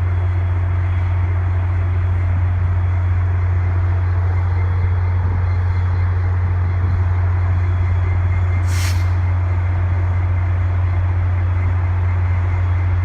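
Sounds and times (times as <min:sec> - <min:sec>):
diesel locomotive idling: 0:00.0 - 0:13.0.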